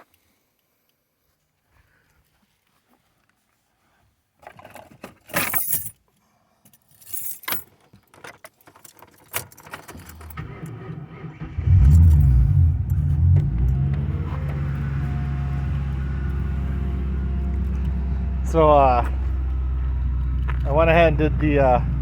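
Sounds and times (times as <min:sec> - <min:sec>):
keys jangling: 0:05.2 - 0:06.0, 0:06.7 - 0:10.4
car engine starting and idling: 0:09.9 - 0:22.0.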